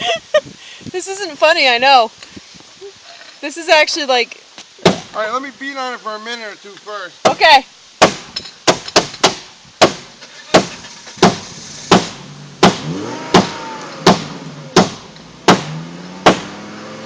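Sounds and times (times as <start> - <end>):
hammer pounding on car: 8.0 - 16.5.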